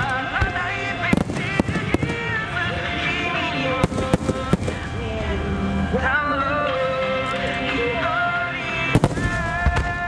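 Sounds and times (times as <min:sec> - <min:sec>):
music: 0:00.0 - 0:10.0
firework shells bursting: 0:03.8 - 0:04.9.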